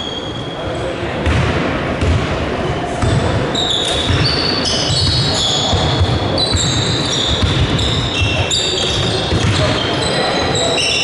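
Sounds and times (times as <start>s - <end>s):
crowd murmur: 0.0s - 11.0s
basketball bouncing on gym floor: 1.2s - 2.4s, 3.0s - 9.9s
sneakers squeaking on court: 3.0s - 11.0s.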